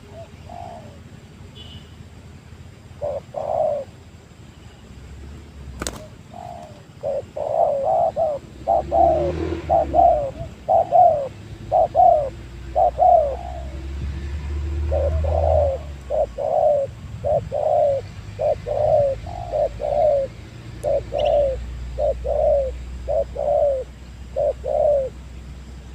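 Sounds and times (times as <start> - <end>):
dove cooing: 0.0 - 1.1, 2.9 - 4.0, 5.8 - 25.3.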